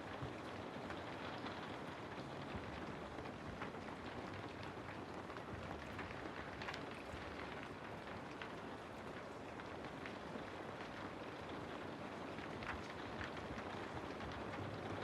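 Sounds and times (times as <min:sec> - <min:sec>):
rain falling through trees: 0:00.0 - 0:15.0.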